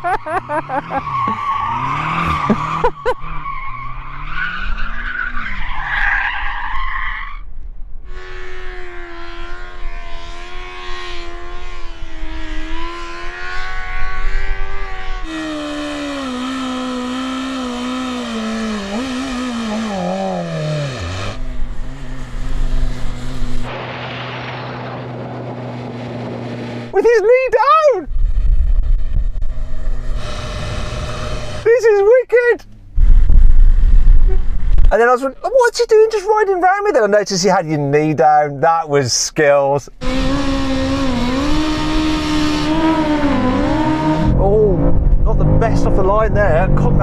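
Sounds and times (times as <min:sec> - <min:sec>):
car engine revving: 0:00.0 - 0:05.5, 0:08.1 - 0:34.9, 0:40.0 - 0:47.0
tyres squealing and skidding: 0:00.0 - 0:07.5, 0:15.2 - 0:22.4.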